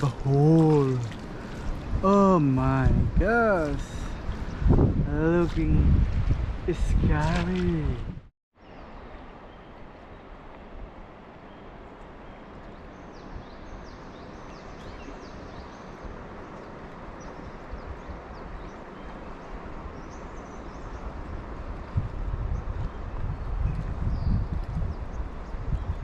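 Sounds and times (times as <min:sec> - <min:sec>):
river water rushing: 0:00.0 - 0:04.8.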